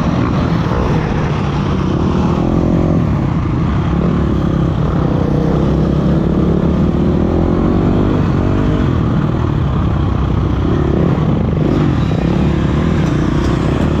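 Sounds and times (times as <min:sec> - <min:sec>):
dirt bike engine revving: 0:10.6 - 0:14.0.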